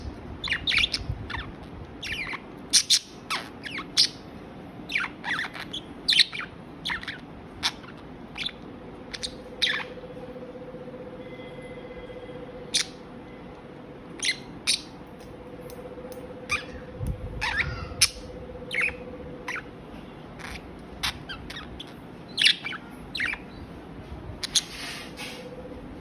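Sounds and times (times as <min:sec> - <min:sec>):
budgerigars chirping and squawking: 0:00.0 - 0:04.3, 0:04.9 - 0:10.0, 0:12.7 - 0:13.0, 0:14.2 - 0:15.0, 0:16.5 - 0:19.8, 0:20.4 - 0:23.8, 0:24.4 - 0:25.4
faint steady hum: 0:00.0 - 0:26.0.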